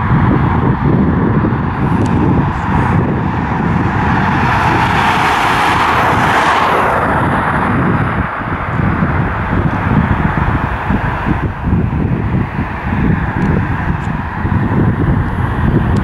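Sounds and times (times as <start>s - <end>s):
freight train rumbling past: 0.0s - 16.0s
rushing noise: 0.0s - 16.0s
wind buffeting microphone: 0.0s - 16.0s.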